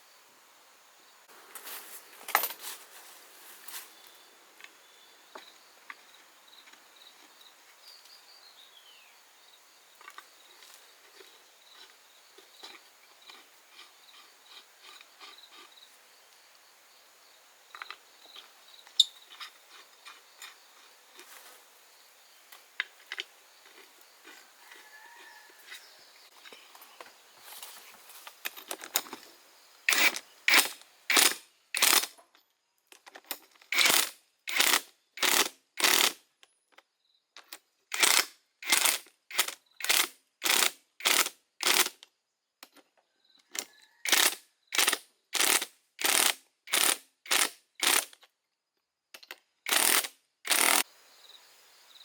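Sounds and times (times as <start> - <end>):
insect chirring: 9.0 - 25.5.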